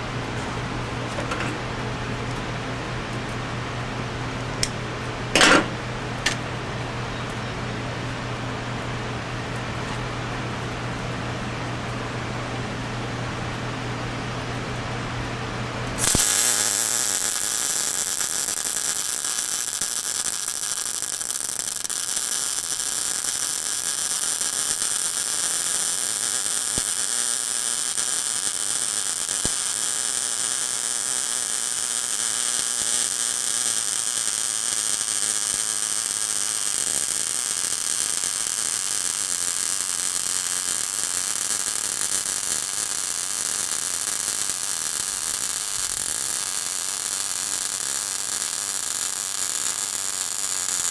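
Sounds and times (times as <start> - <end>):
welding arc crackling sizzle: 4.4 - 6.6, 15.9 - 50.9
welder humming: 16.0 - 50.9.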